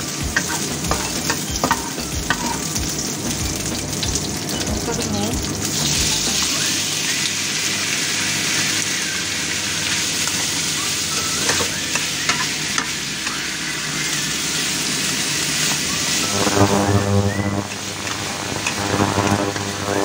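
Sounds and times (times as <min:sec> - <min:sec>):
pork sizzling in a wok: 0:00.0 - 0:20.0.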